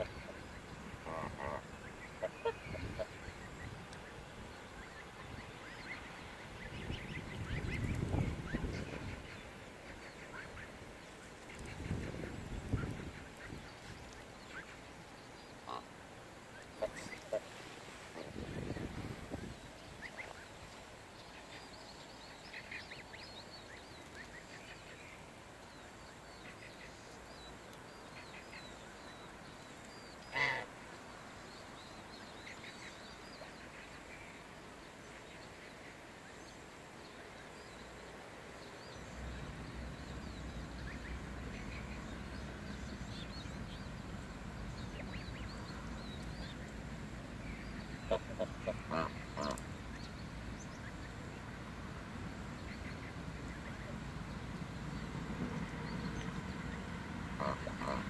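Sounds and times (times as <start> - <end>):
geese honking: 1.0 - 3.2, 30.3 - 30.7, 48.1 - 49.6, 57.3 - 58.0.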